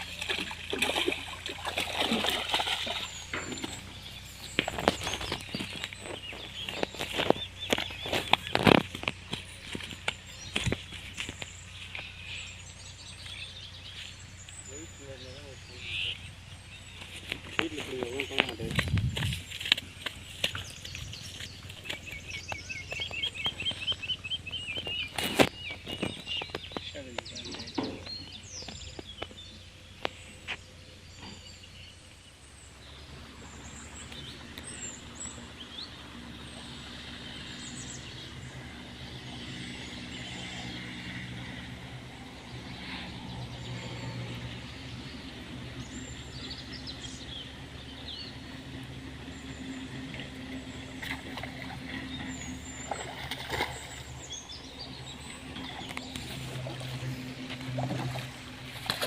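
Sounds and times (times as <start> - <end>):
low engine-like hum: 0.0 - 59.0
small birds chirping and calling: 0.0 - 59.0.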